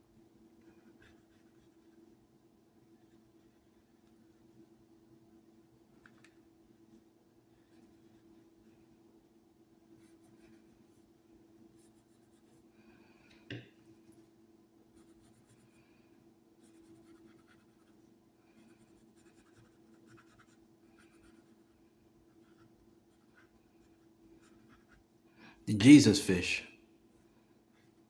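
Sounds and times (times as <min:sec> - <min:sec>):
scratching of drawing strokes: 0:16.6 - 0:25.1.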